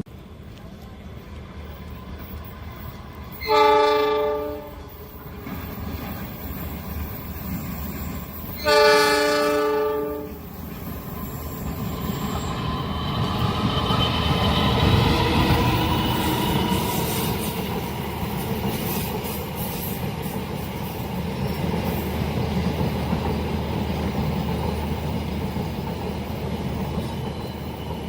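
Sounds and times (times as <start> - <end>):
train rumbling: 0.0 - 28.0
train horn blasts: 3.4 - 5.0, 8.6 - 10.4.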